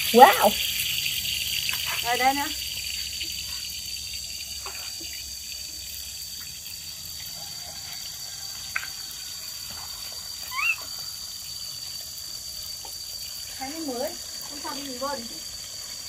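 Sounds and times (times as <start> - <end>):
water gushing onto wet ground: 0.0 - 16.0.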